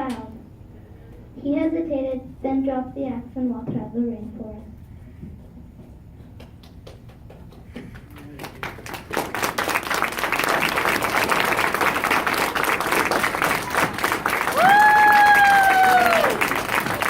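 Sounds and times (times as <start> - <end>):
audience applause: 7.4 - 17.0.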